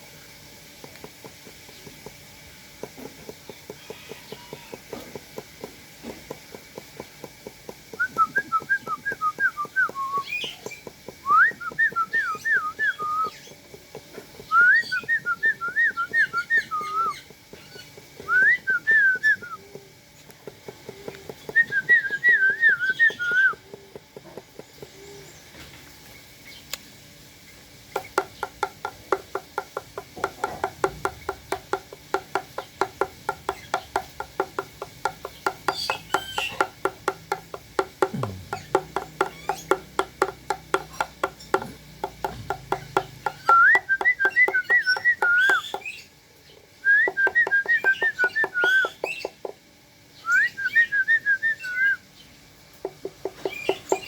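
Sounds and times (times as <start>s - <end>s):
fast run of clicks: 0.8s - 25.0s.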